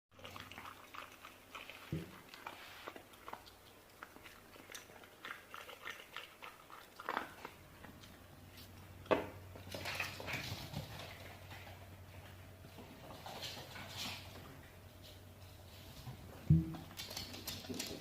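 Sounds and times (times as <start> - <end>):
dog chewing and biting: 0.2 - 9.1.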